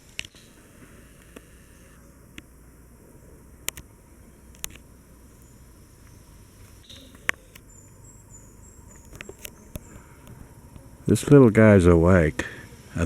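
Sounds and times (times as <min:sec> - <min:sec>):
faint high insect chirping: 0:00.0 - 0:13.0
sharp isolated clicks: 0:03.6 - 0:03.9, 0:04.5 - 0:04.8.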